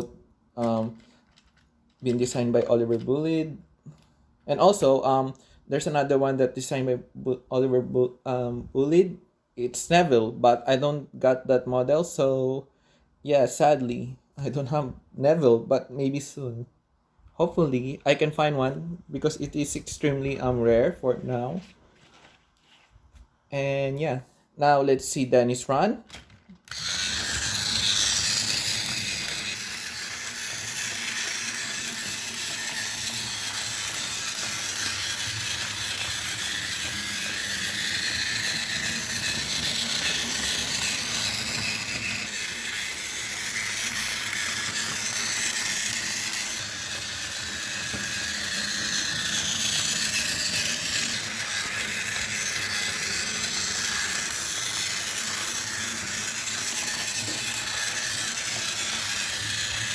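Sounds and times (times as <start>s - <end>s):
toy train wheel rattle: 0.0s - 4.0s, 26.1s - 59.9s
toy train motor whirring: 0.0s - 5.0s, 26.1s - 59.9s.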